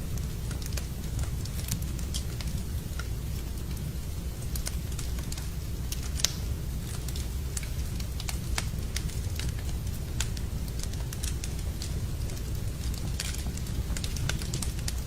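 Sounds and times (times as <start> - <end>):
low rumble of burning fire: 0.0 - 15.0
wood fire crackling: 0.0 - 15.0
sharp pops of fire: 4.5 - 15.0.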